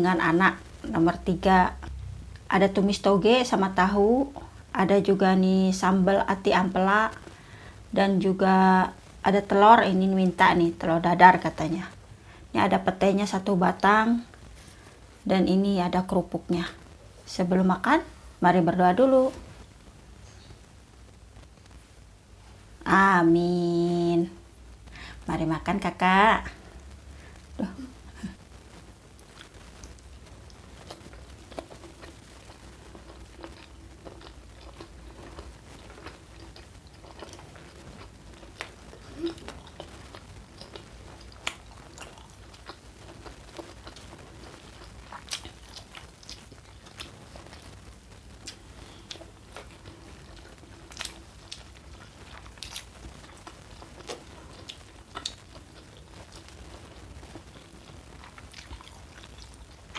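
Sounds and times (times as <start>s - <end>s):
crackers crunching: 29.1s - 59.9s
chewing: 29.2s - 47.8s, 48.4s - 59.9s.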